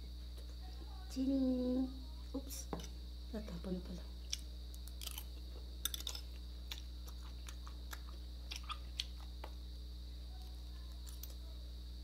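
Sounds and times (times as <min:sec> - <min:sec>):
low electrical hum: 0:00.0 - 0:12.0
chewing and biting: 0:04.3 - 0:09.6.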